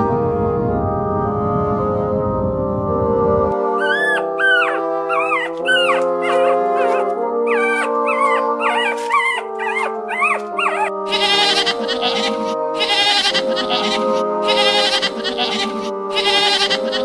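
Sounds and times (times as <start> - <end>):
background music: 0.0 - 17.0
animal whining calls: 3.8 - 17.0.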